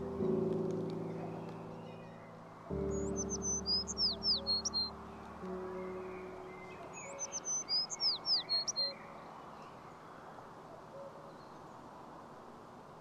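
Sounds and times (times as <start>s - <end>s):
soft forest background hiss: 0.0s - 13.0s
songbird whistled notes: 2.9s - 4.9s, 5.5s - 9.0s.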